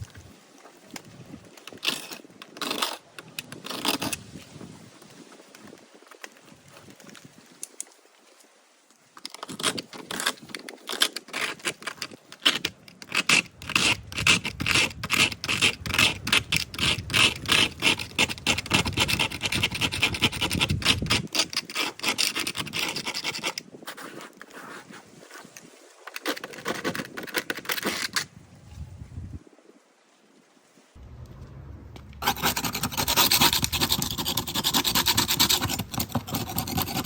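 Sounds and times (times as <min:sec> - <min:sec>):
hand tool scraping a wall: 0:09.5 - 0:25.0, 0:32.2 - 0:37.0.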